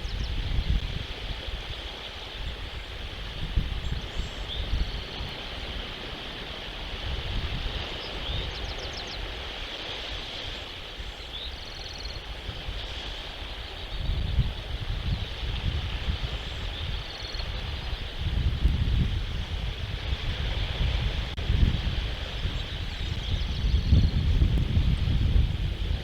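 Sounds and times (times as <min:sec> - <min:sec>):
faint bird chirps and trills: 0:00.0 - 0:00.8, 0:03.6 - 0:05.8, 0:07.5 - 0:18.7, 0:22.4 - 0:25.2
wind buffeting microphone: 0:00.0 - 0:26.0.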